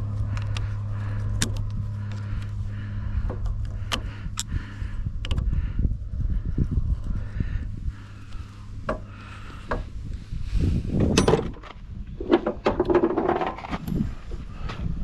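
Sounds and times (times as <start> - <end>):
low hum: 0.0 - 15.0
hard objects knocking and clattering: 12.2 - 13.8.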